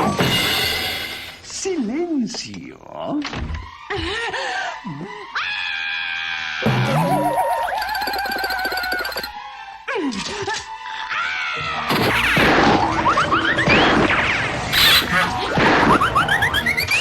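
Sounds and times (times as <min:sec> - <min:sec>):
cartoon whistle glides: 0:06.7 - 0:09.3, 0:14.8 - 0:17.0
cartoon whacks and crashes: 0:11.9 - 0:16.5.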